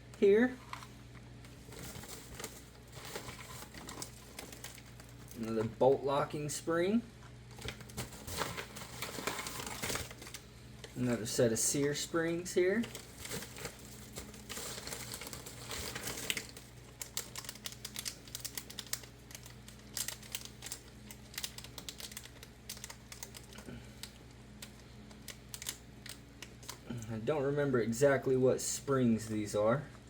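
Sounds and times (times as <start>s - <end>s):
plastic packaging crinkling: 0.6s - 5.9s, 7.2s - 26.9s.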